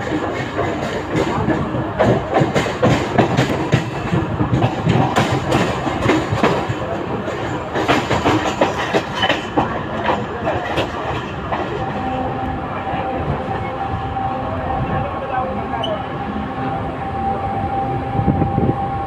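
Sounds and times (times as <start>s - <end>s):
train wheels clattering: 0.0s - 13.8s
train rumble: 0.0s - 19.0s.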